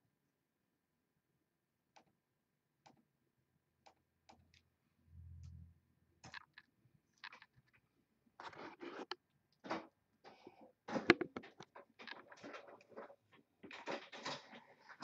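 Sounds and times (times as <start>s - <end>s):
low hum: 5.0s - 6.0s.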